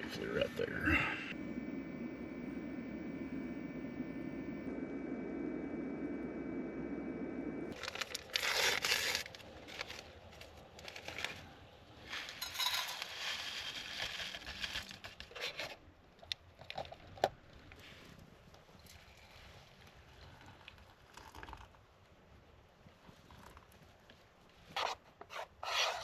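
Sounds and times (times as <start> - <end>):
steady hum: 0.0 - 13.0
packaging crinkling and tearing: 7.7 - 11.6, 13.0 - 15.4.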